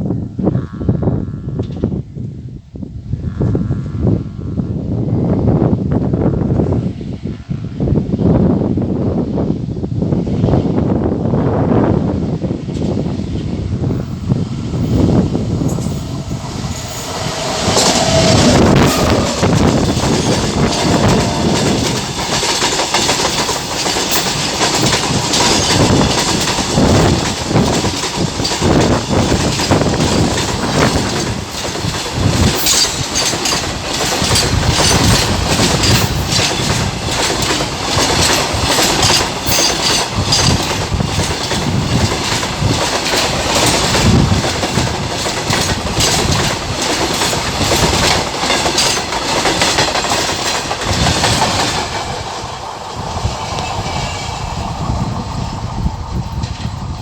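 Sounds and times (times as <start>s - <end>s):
train wheels rumbling on rail: 3.2s - 57.0s
wheels clacking over rail joints: 12.8s - 57.0s.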